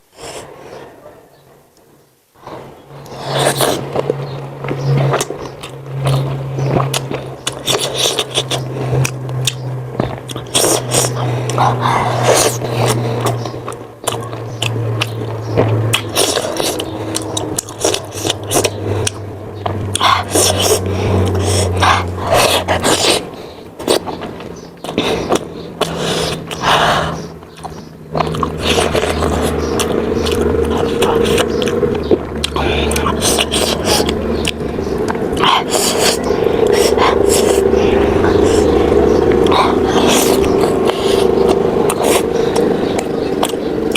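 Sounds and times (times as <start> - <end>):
low steady hum: 0.0 - 43.9
close-miked biting and chewing: 2.4 - 43.9.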